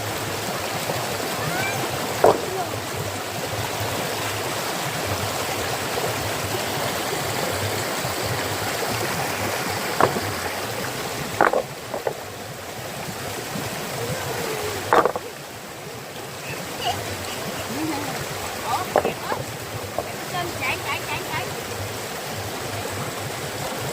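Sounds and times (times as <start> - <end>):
stream water rushing: 0.0 - 23.9
sharp knocks or splashes: 1.6 - 2.9, 9.6 - 12.3, 14.8 - 15.3, 18.6 - 20.2.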